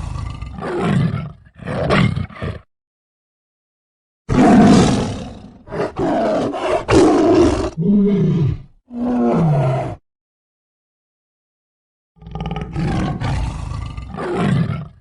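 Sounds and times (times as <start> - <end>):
big cat roaring: 0.0 - 2.7, 4.3 - 10.0, 12.2 - 15.0.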